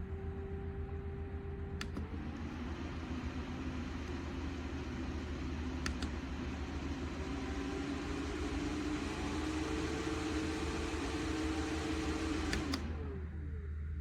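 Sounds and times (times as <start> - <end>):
faint motor hum: 0.0 - 14.0
light clicks: 1.8 - 2.2, 5.8 - 6.2, 12.2 - 13.0
desk fan whooshing air: 1.9 - 13.2.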